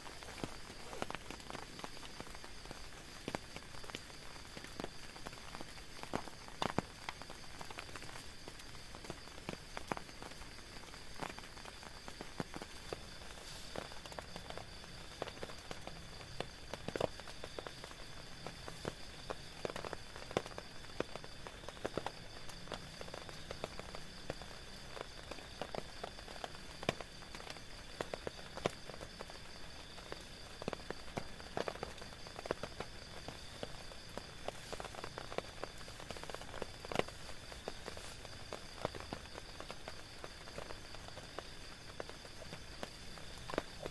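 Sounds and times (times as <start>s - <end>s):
rain on tent fabric: 0.0s - 43.9s.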